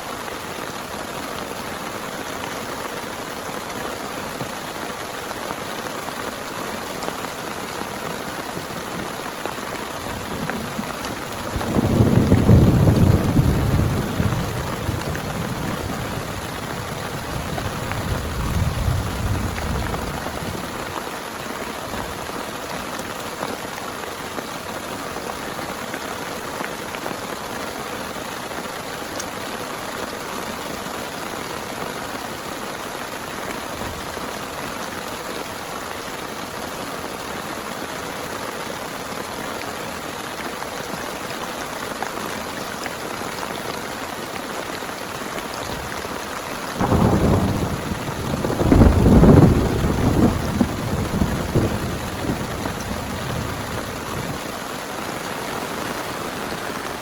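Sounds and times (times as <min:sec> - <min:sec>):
heavy rain: 0:00.0 - 0:57.0
low thunder rumble: 0:10.1 - 0:20.8, 0:46.8 - 0:54.4.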